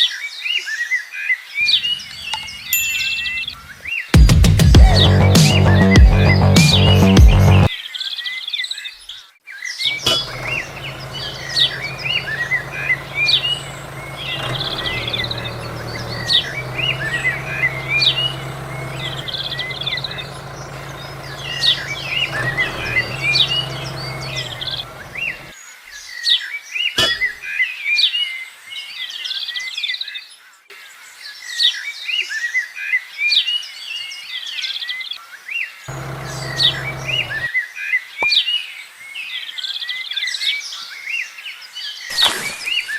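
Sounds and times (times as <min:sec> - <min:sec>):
small birds chirping: 0:01.6 - 0:25.6, 0:35.9 - 0:37.5
water pump engine humming: 0:04.8 - 0:07.7, 0:09.9 - 0:25.5, 0:35.9 - 0:37.5.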